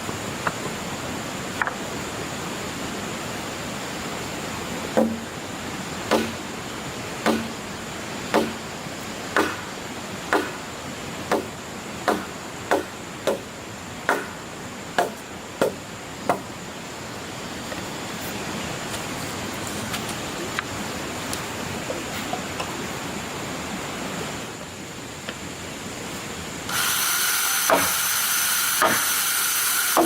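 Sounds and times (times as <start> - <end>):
steady hiss: 0.0 - 30.0
hand tool striking wood: 4.9 - 5.3, 6.1 - 6.4, 7.2 - 7.6, 8.3 - 8.6, 9.4 - 9.7, 10.3 - 10.6, 11.3 - 11.5, 12.1 - 13.5, 14.1 - 14.4, 15.0 - 16.5, 27.6 - 28.1, 28.8 - 30.0.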